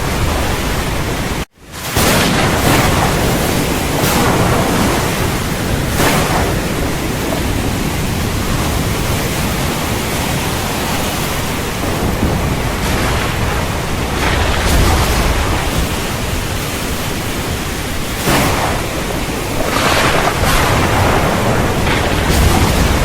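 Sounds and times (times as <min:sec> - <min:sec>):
heavy rain hissing: 0:00.0 - 0:23.0.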